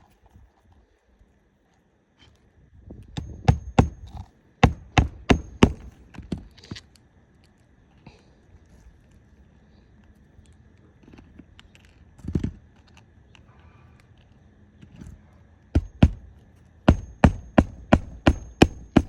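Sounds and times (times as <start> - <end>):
hammer driving nails: 3.2 - 6.0, 15.8 - 16.3, 16.9 - 19.0.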